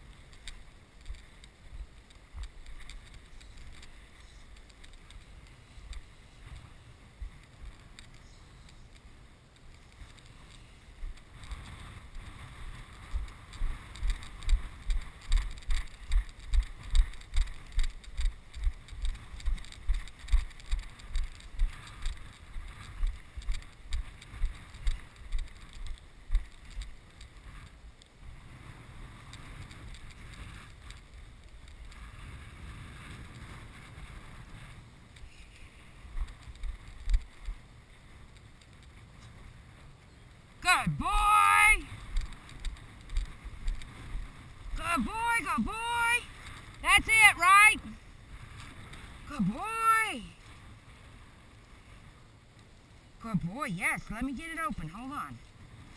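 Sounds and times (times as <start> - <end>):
footsteps through a field: 0.0 - 55.9
wind noise on microphone: 0.0 - 55.9.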